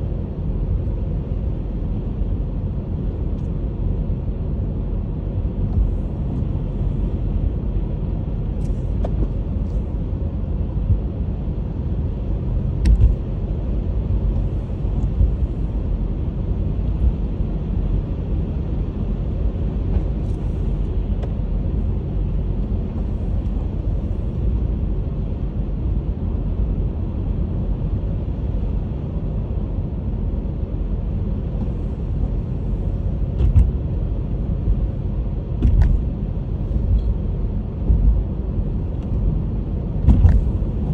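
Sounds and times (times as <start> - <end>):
tyres and engine rumble: 0.0 - 40.9
clicks and thumps: 40.0 - 40.6.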